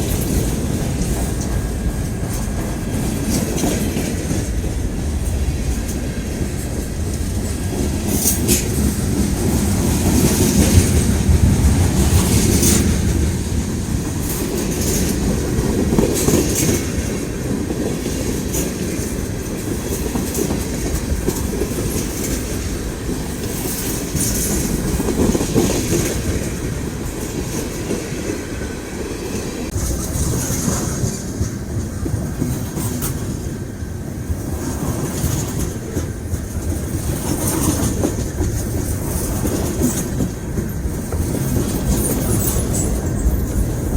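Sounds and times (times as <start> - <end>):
steel wheels rumbling on rail: 0.0 - 43.9
wheels clacking on rail joints: 0.0 - 43.9.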